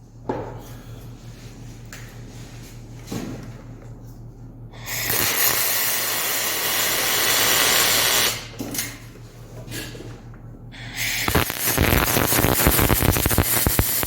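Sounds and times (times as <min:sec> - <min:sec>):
low electrical hum: 0:00.0 - 0:14.0
welding arc hissing: 0:04.9 - 0:08.5, 0:11.0 - 0:14.0.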